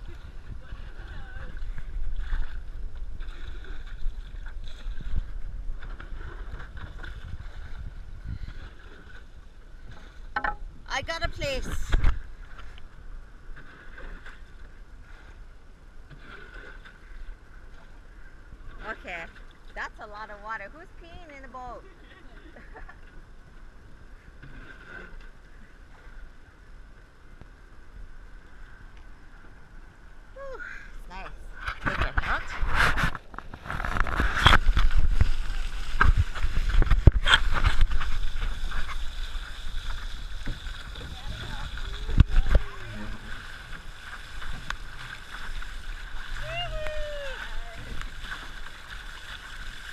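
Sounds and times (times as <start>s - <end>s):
wind rumble on microphone: 0.0s - 16.2s, 31.2s - 49.9s
water rushing and splashing: 16.0s - 22.6s, 31.0s - 49.9s.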